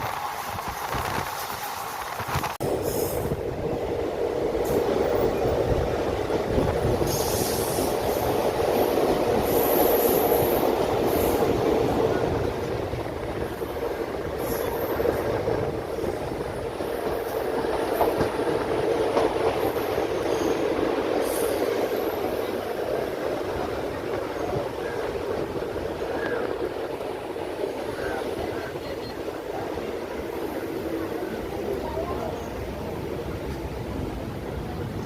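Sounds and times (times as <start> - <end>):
train wheels rumbling on track: 0.0 - 35.0.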